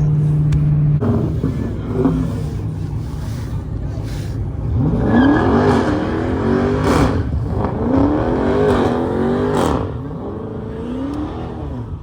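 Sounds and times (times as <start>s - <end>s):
car engine revving hard: 0.0s - 3.1s, 4.5s - 12.0s.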